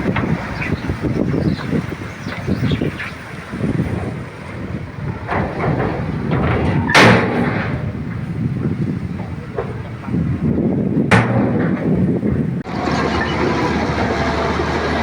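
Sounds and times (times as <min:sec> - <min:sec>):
bulldozer engine rumbling: 0:00.0 - 0:15.0
clanks: 0:03.6 - 0:10.4, 0:11.0 - 0:15.0.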